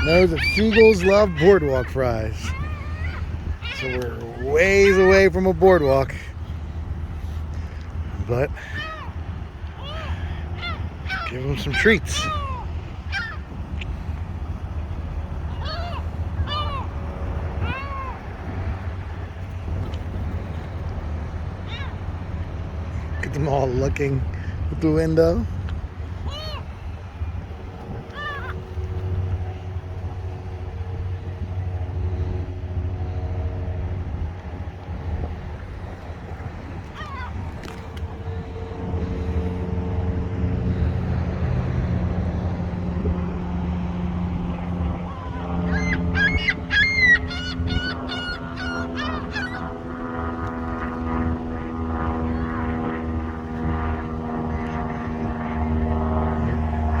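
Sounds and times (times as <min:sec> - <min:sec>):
faint gull calls: 0:00.0 - 0:23.2, 0:26.0 - 0:30.0, 0:35.5 - 0:38.5, 0:44.2 - 0:55.8
faint hum: 0:00.0 - 0:57.0
low engine rumble: 0:00.0 - 0:57.0.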